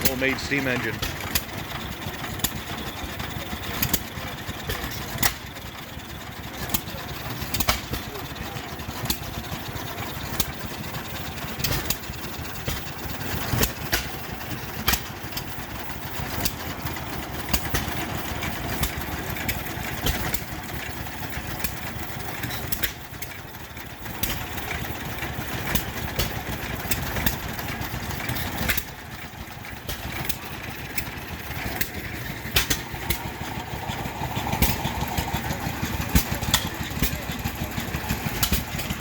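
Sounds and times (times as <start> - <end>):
machinery background noise: 0.0 - 39.0
small engine running with sharp pops: 0.0 - 39.0.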